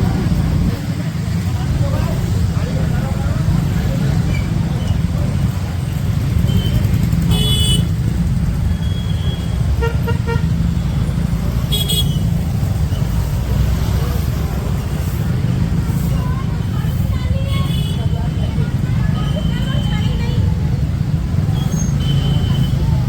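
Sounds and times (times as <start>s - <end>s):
motorbike engine rumble: 0.0s - 23.0s
vehicle horns honking: 6.4s - 8.0s, 8.8s - 10.6s, 11.7s - 12.4s.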